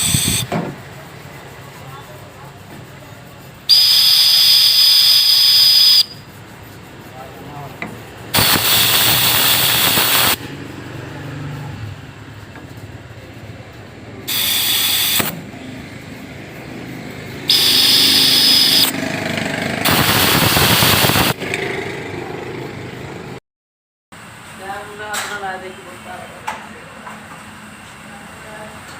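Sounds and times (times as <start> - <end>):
workshop tool hissing bursts: 0.0 - 0.5, 3.6 - 6.3, 8.3 - 10.4, 14.3 - 15.5, 17.4 - 19.0, 19.8 - 21.4.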